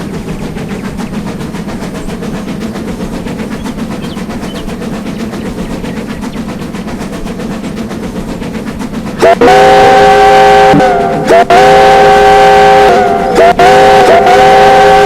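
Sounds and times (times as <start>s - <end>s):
steam locomotive exhaust beats: 0.0s - 15.0s
locomotive chime whistle: 9.2s - 15.0s.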